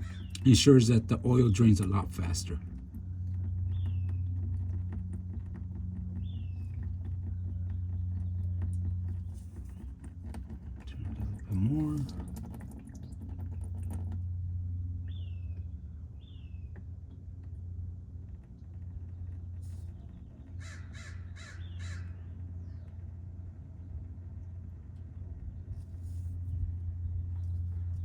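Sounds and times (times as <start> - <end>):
crow cawing: 0.0 - 0.4, 20.6 - 22.2
steady low hum: 0.0 - 28.0.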